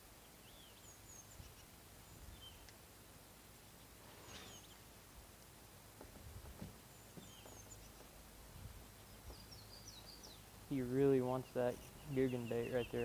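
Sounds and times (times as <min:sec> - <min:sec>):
faint high bird chirps: 0:03.8 - 0:04.8, 0:07.0 - 0:08.0.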